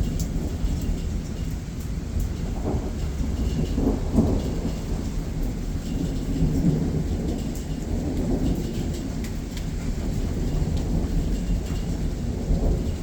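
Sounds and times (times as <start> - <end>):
raindrops ticking: 0.0 - 13.0
thunder rumbling: 0.0 - 13.0.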